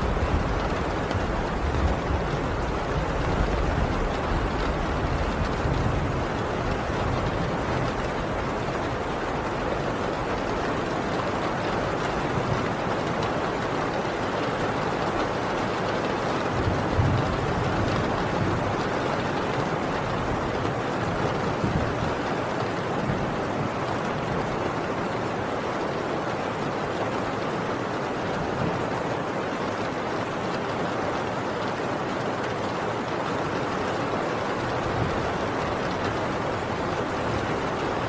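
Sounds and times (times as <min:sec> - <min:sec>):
heavy rain on a tin roof: 0:00.0 - 0:38.0.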